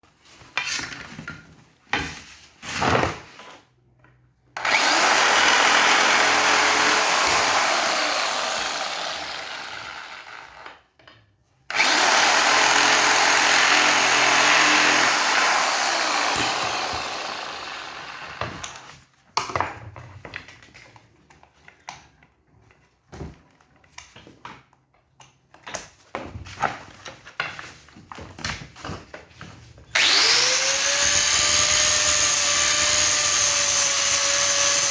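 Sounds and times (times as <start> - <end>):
power tool running: 4.6 - 10.7, 11.7 - 18.9, 30.0 - 34.9
knocks and clatter of handling: 18.5 - 29.9.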